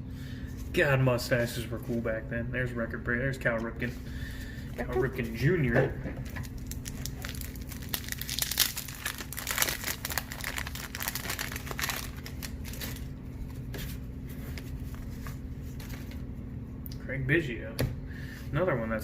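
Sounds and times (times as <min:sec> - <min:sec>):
wrapper crinkling and tearing: 0:06.3 - 0:13.2.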